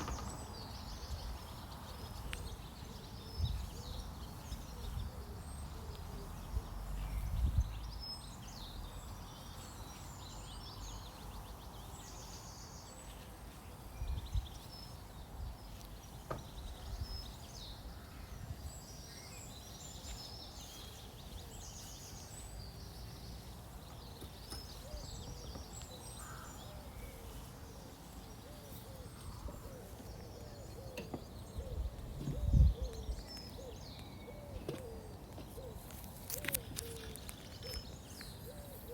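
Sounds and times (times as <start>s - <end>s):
small birds chirping: 0.0s - 38.9s
steady outdoor hiss: 0.0s - 38.9s
low cooing calls: 24.8s - 38.9s.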